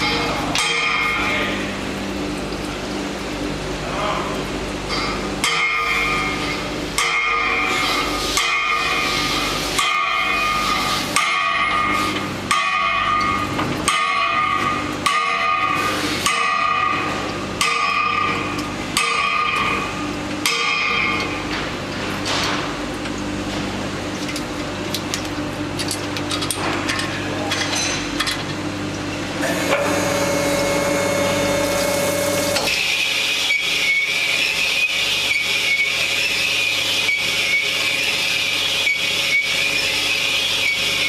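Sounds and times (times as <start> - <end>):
machine hum: 28.2 - 35.5.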